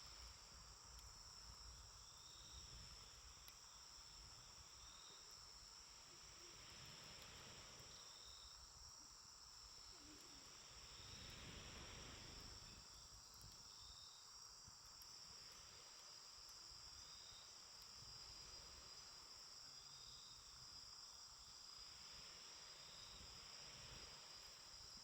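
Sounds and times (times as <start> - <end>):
campfire hissing and crackling: 0.0 - 25.0
crickets trilling: 0.0 - 25.0.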